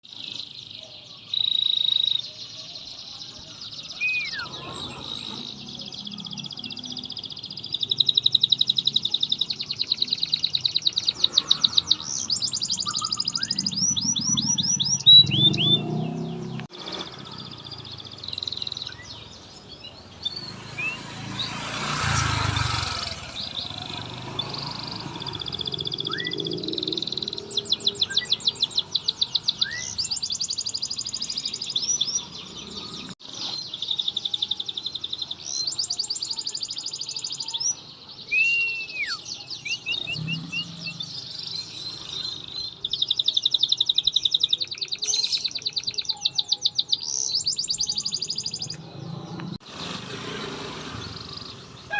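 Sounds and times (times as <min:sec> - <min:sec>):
canary singing trills: 0:00.0 - 0:51.9.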